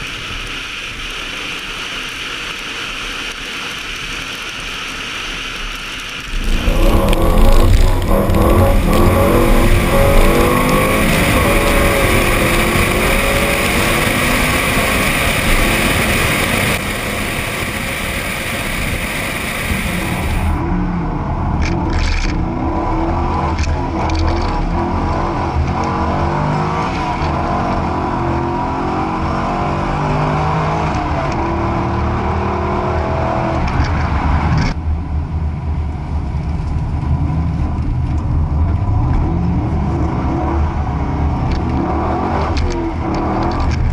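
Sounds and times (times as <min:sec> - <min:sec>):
steady hiss: 0:00.0 - 0:20.6
car engines revving: 0:02.5 - 0:34.8, 0:35.8 - 0:43.9.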